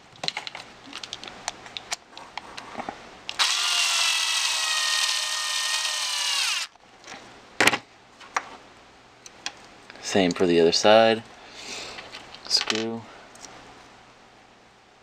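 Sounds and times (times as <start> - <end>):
electric driver whining: 3.4 - 6.7.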